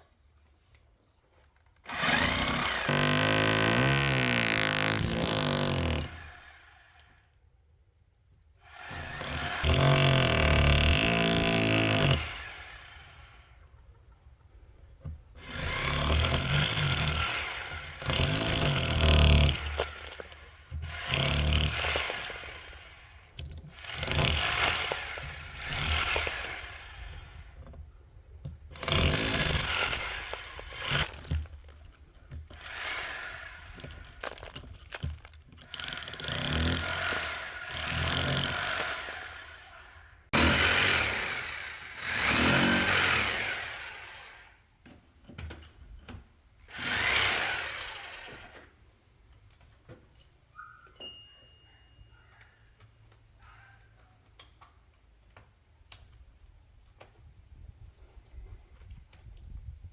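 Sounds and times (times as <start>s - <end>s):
power drill boring holes: 1.8s - 7.4s, 8.6s - 13.6s, 15.4s - 27.7s, 28.7s - 44.6s, 46.7s - 48.7s.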